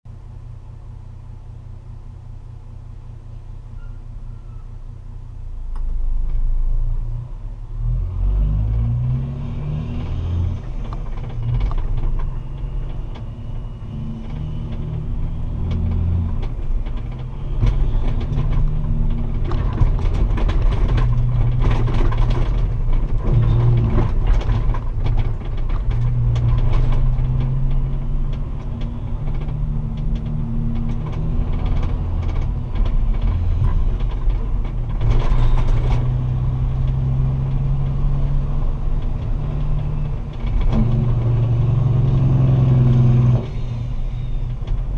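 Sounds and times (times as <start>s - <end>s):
diesel truck engine running: 10.2s - 44.9s.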